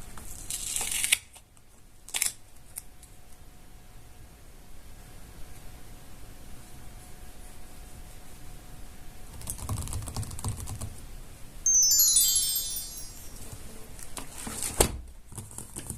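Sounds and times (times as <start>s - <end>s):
descending chime sound effect: 11.7s - 13.7s.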